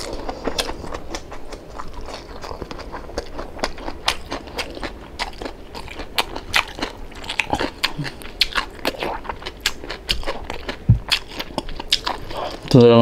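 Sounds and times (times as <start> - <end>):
crunchy chewing: 0.0 - 12.9
dull low thump: 10.8 - 11.1.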